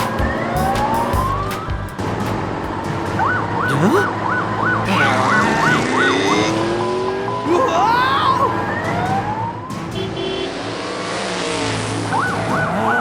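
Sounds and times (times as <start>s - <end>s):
background music: 0.0s - 3.0s
two-tone siren: 6.7s - 13.0s.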